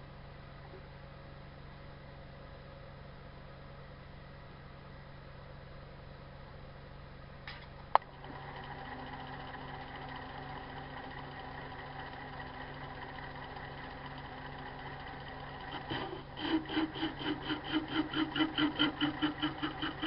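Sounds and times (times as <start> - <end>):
electric motor humming: 8.0 - 20.0.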